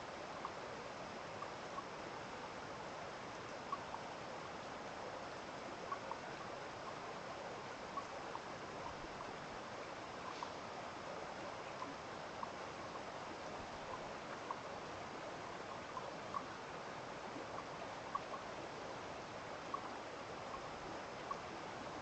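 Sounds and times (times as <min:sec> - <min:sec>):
stream running: 0:00.0 - 0:22.0.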